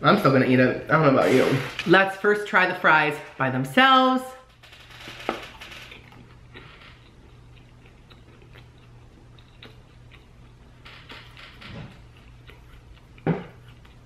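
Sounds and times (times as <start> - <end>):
steady low hum: 0.0 - 14.0
person chewing fries: 5.0 - 14.0.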